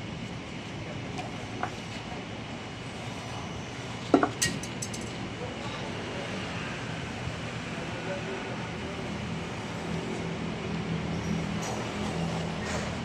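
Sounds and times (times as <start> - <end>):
steady background hum: 0.0 - 13.0
metal tools clinking: 4.4 - 5.2.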